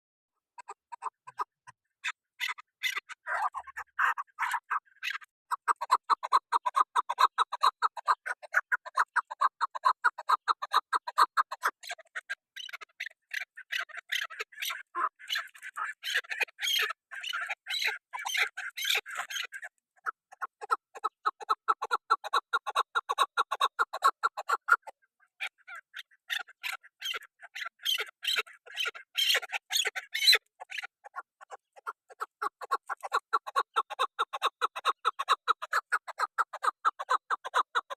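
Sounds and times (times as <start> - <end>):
bird calling: 25.4 - 30.9.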